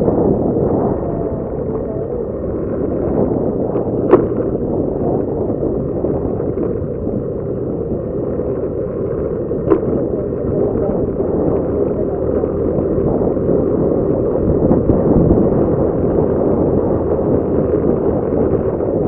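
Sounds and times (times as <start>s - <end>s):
motorcycle engine rumble: 0.0s - 19.0s
wind rushing over microphone: 0.0s - 19.0s.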